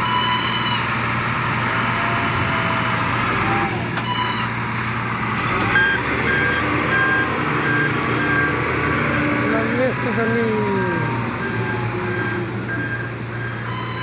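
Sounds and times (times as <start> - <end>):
reversing alarm beeping: 0.0 - 0.9, 4.0 - 4.6, 5.7 - 8.6, 10.1 - 14.0
heavy truck engine running: 0.0 - 14.0.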